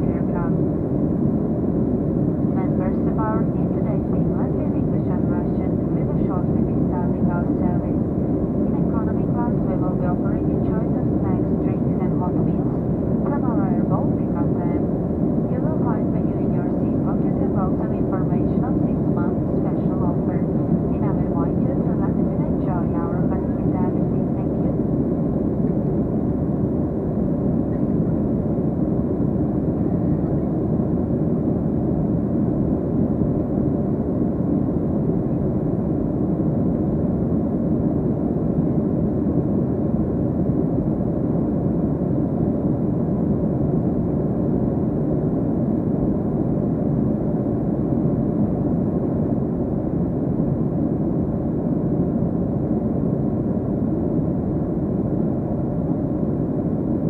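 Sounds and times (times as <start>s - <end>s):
jet engines roaring in cabin: 0.0s - 57.0s.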